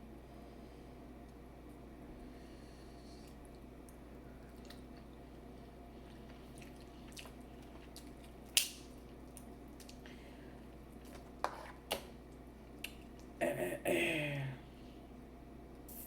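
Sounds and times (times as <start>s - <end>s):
wet chewing: 6.0s - 10.0s.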